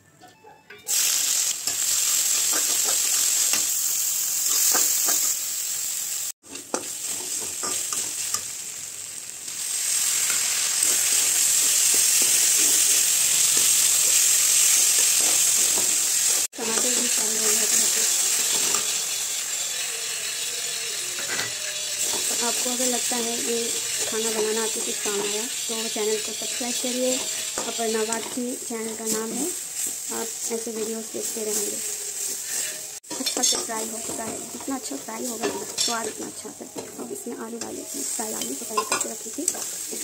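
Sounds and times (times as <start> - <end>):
vegetables sizzling in hot oil: 0.9 - 40.0
metal spatula scraping pan: 16.7 - 28.5.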